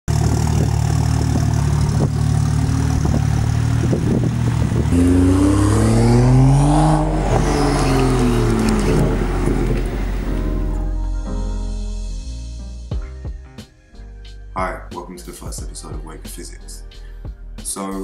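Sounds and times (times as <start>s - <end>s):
car engine revving: 0.1s - 10.8s.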